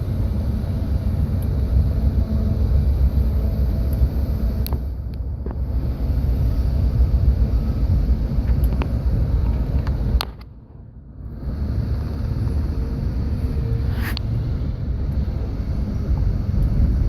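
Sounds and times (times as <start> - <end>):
moving train rumble: 0.0 - 17.0
wind buffeting microphone: 11.2 - 17.0.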